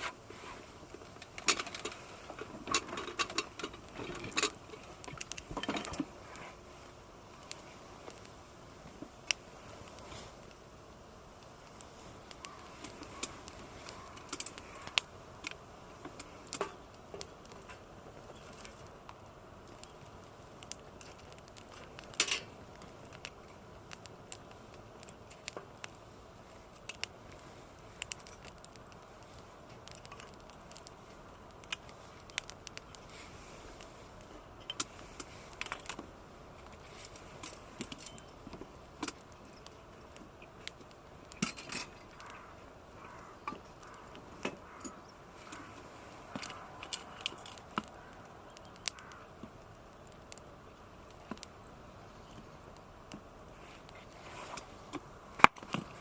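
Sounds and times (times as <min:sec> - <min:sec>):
faint steady hiss: 0:00.0 - 0:56.0.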